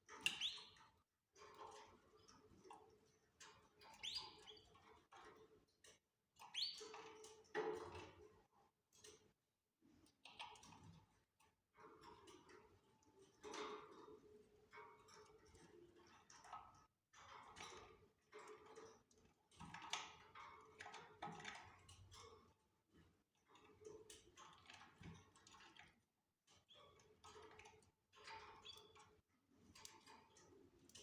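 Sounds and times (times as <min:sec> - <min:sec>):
canaries chirping: 0:00.3 - 0:00.7, 0:04.0 - 0:04.5, 0:06.5 - 0:06.9.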